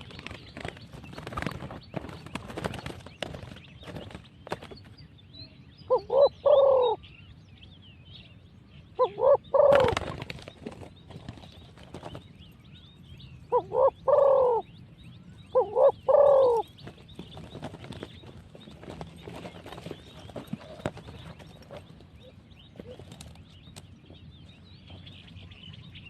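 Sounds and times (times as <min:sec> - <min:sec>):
small birds chirping faintly: 0:00.0 - 0:26.0
dove cooing: 0:05.9 - 0:07.0, 0:09.0 - 0:10.3, 0:13.5 - 0:14.7, 0:15.5 - 0:16.9.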